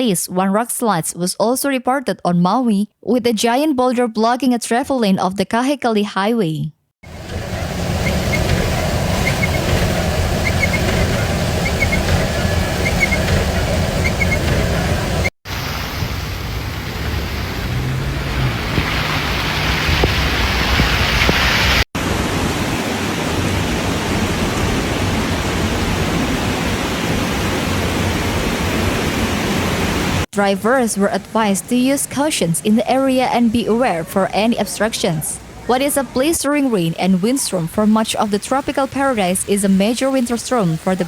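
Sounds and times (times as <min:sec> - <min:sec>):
storm water: 0:07.0 - 0:33.7.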